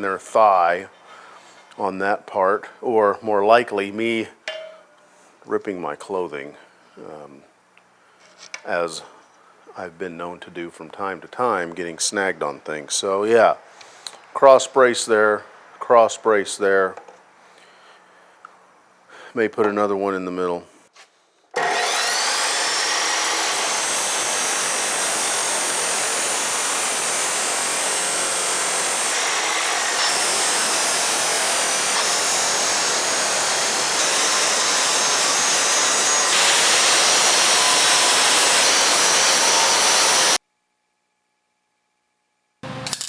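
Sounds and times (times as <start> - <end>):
abrasive wheel grinding steel: 21.6 - 40.4.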